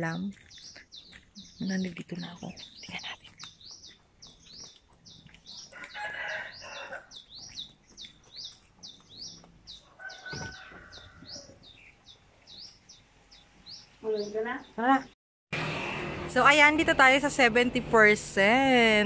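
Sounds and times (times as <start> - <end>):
bird chirping: 0.0 - 15.1.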